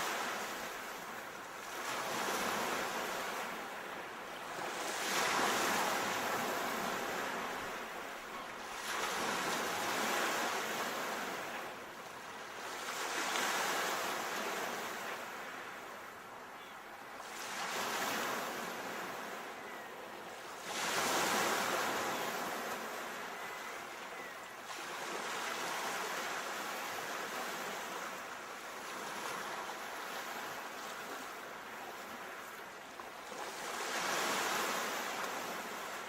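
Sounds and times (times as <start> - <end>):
sea waves washing on shore: 0.0 - 16.3.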